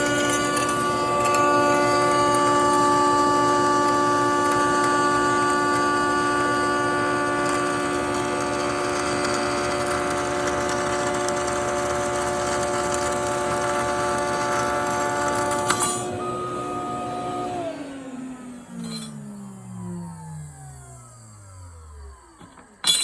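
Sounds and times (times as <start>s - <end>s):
cnc spindle whining: 0.0s - 23.0s.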